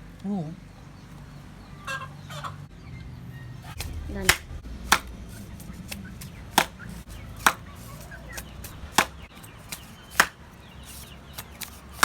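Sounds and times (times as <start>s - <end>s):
bamboo chopping strikes: 3.8s - 12.0s.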